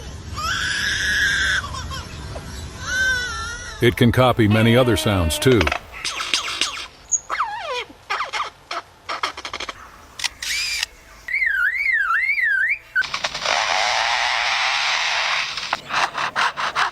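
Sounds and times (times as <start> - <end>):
lyrebird warbling wail: 0.4 - 16.9
lyrebird harsh rasping noise: 2.9 - 16.9
lyrebird clicks and chirps: 5.6 - 6.9, 8.3 - 10.9.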